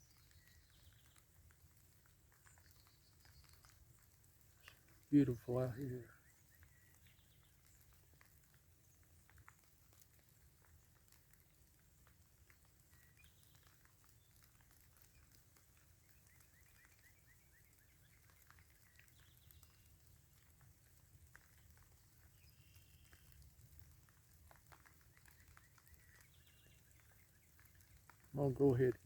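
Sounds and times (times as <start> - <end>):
faint bird chirps: 0.0 - 9.6, 12.7 - 20.1, 21.5 - 23.4, 24.8 - 28.9
light rain pattering: 0.0 - 29.0.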